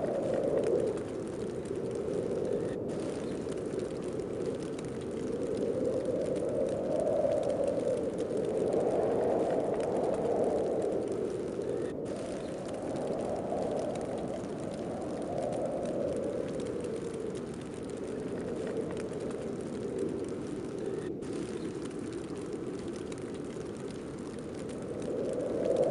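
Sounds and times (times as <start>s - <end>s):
snowstorm wind gusting: 0.0s - 25.9s.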